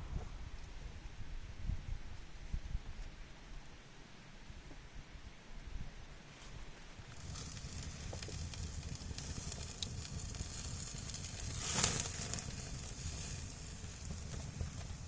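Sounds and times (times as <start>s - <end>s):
campfire crackling: 7.0s - 15.0s.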